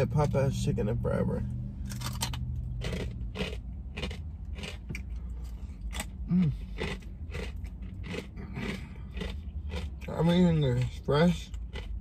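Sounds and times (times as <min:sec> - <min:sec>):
chewing crispy fried chicken: 0:02.8 - 0:12.0
person humming: 0:06.3 - 0:06.6.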